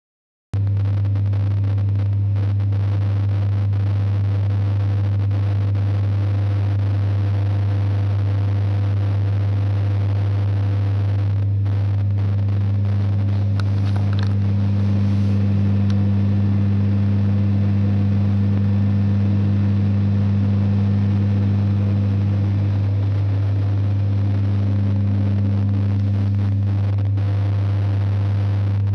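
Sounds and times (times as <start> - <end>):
higher pitched hum: 0.7 - 28.9
electric train motor humming: 13.3 - 26.8.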